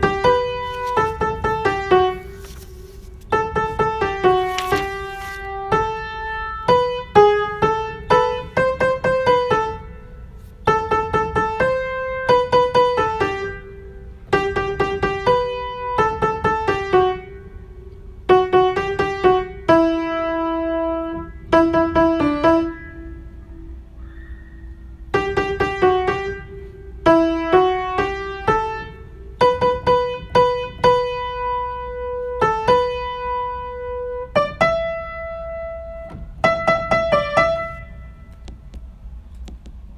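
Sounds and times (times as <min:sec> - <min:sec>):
piano melody: 0:00.0 - 0:17.7, 0:18.3 - 0:23.8, 0:25.1 - 0:38.4.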